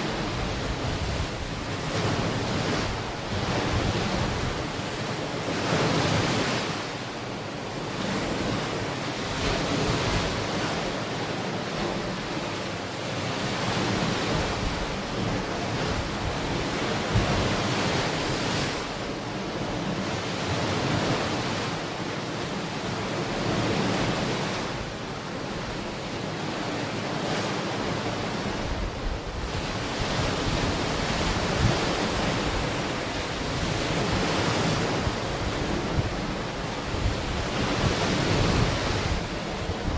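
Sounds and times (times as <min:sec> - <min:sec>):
wind buffeting microphone: 0:00.0 - 0:04.9, 0:13.8 - 0:19.1, 0:28.4 - 0:39.9
ocean waves breaking on beach: 0:00.0 - 0:39.9.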